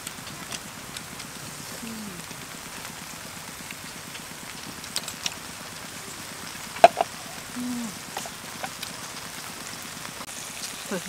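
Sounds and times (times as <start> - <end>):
beef sizzling in a wok: 0.0 - 11.0.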